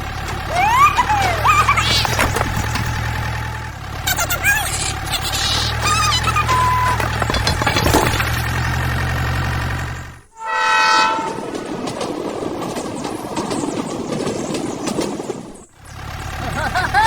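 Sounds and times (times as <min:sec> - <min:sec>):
train rumbling: 0:00.0 - 0:17.0
train wheels clattering on track: 0:00.0 - 0:17.0
train horn blowing: 0:10.3 - 0:12.2.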